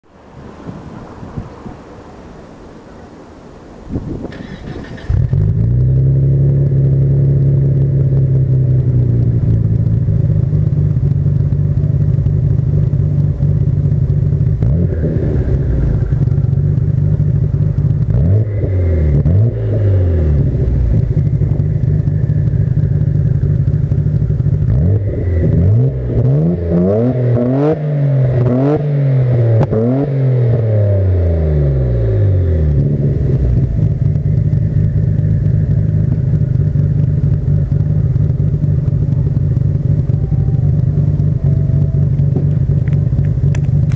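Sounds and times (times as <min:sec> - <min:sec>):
car engine idling and revving: 0:00.0 - 0:43.9.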